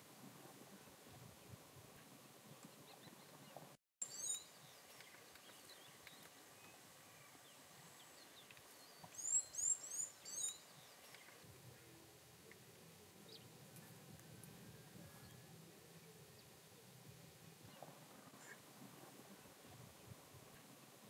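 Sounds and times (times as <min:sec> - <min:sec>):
bird chirping: 0:01.4 - 0:12.6.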